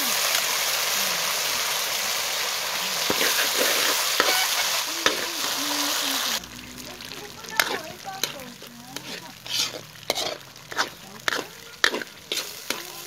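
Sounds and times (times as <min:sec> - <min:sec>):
beans sizzling in hot oil: 0:00.0 - 0:13.0
metal ladle stirring: 0:07.5 - 0:13.0
ladle clicking against pan: 0:10.1 - 0:12.9.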